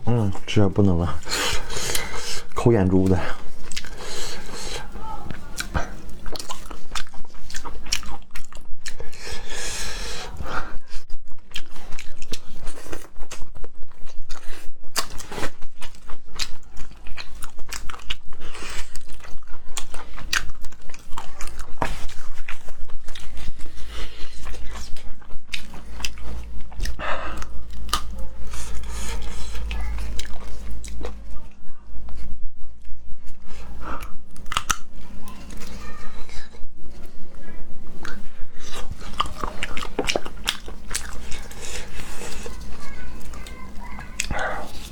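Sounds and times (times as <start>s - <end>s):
crunching and chewing seafood: 0.0s - 44.9s.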